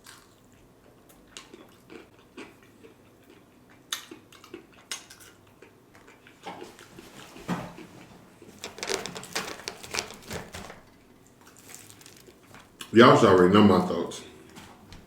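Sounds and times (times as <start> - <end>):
person chewing: 0.0 - 7.0, 11.4 - 12.9
soft clicks and crunches: 8.6 - 12.9.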